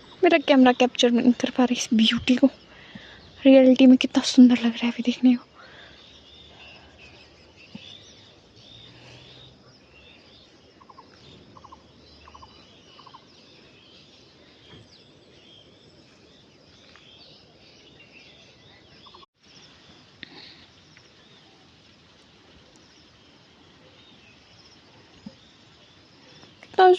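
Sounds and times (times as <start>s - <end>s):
faint birdsong: 0.0s - 26.9s
short pulsed bird calls: 5.8s - 15.0s.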